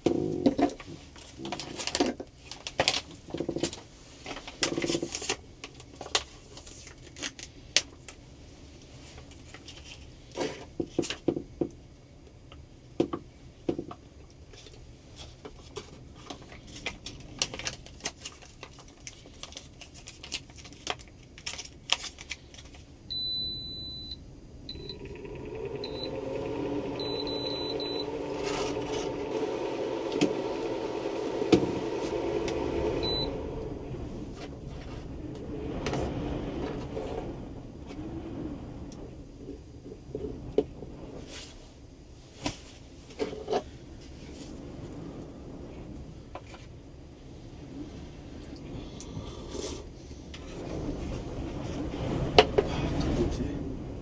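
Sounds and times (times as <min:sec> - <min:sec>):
steady electric hum: 0:20.5 - 0:54.0
appliance beeps: 0:23.1 - 0:29.2, 0:32.9 - 0:33.6.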